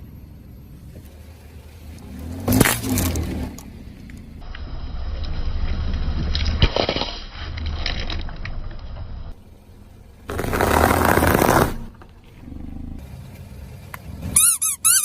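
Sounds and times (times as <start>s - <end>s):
sharp cracks and crunches: 2.5s - 3.7s, 5.2s - 9.2s
low engine hum: 7.7s - 15.0s
tyres crushing objects: 10.3s - 12.0s.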